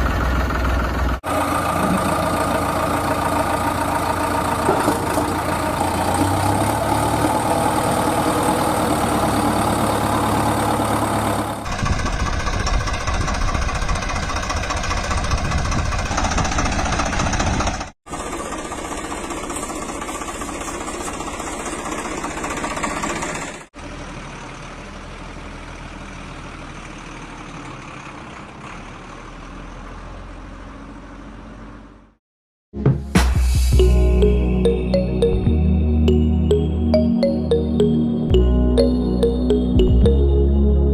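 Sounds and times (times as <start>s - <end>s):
heavy machine engines running: 0.0s - 29.7s.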